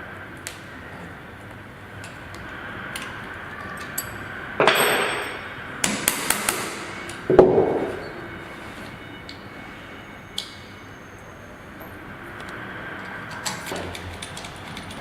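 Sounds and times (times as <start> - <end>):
loud knock: 5.9 - 8.0.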